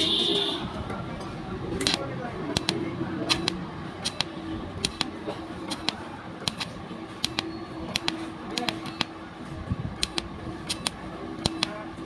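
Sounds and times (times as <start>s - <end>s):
sharp clicks: 1.8s - 9.2s, 10.0s - 11.8s.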